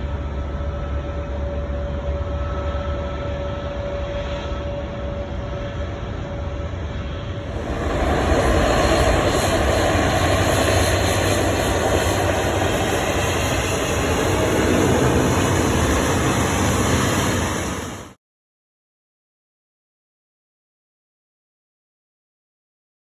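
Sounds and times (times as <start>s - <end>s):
jet engine rumble: 0.2s - 18.2s.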